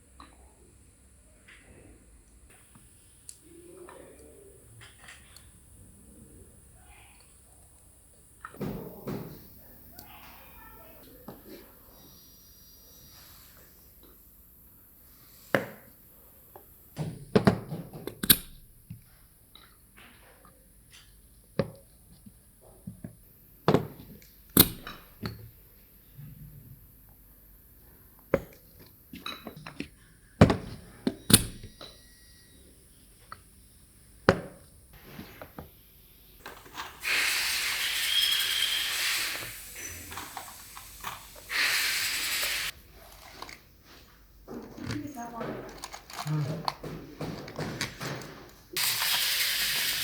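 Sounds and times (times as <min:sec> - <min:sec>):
compressed air hissing: 0:08.6 - 0:17.0, 0:35.0 - 0:42.8, 0:48.8 - 0:50.0.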